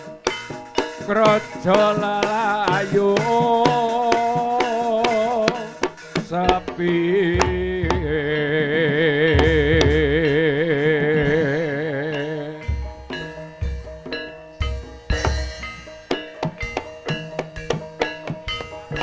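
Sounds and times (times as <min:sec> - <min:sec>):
hand drum strokes: 0:00.0 - 0:19.0
person singing with vibrato: 0:01.1 - 0:13.6.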